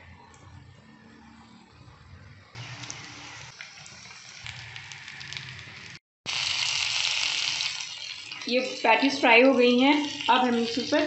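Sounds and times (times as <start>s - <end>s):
oil sizzling and crackling in pan: 2.6s - 11.0s.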